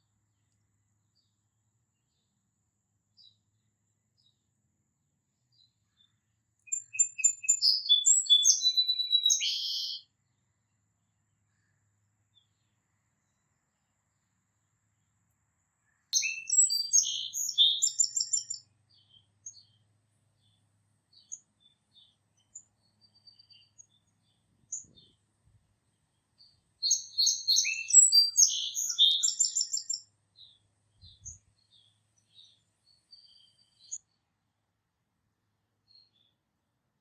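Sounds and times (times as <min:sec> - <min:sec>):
songbirds twittering: 0:05.4 - 0:10.5, 0:15.8 - 0:34.2
single bird chirps: 0:05.6 - 0:10.1, 0:15.9 - 0:19.8, 0:26.4 - 0:34.0.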